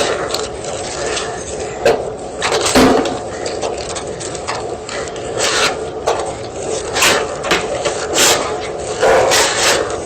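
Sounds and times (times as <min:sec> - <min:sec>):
chalk crunching and scraping: 0:03.8 - 0:10.0.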